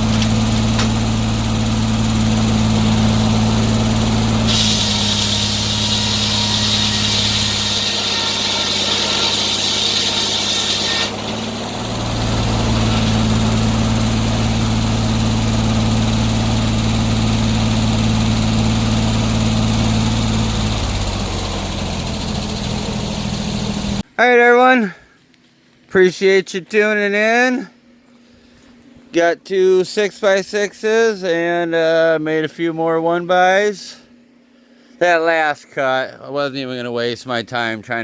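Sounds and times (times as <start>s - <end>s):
sawmill engine running: 0.0s - 24.0s
loud high hiss: 2.4s - 16.9s.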